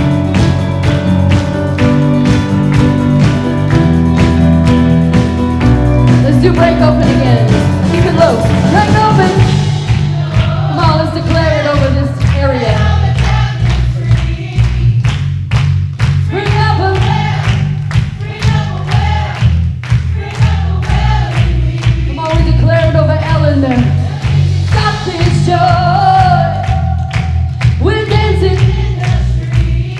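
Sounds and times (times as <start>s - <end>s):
bass guitar: 0.0s - 29.9s
guitar: 0.0s - 29.9s
steady drum beat: 0.0s - 29.9s
voices singing: 10.0s - 14.8s.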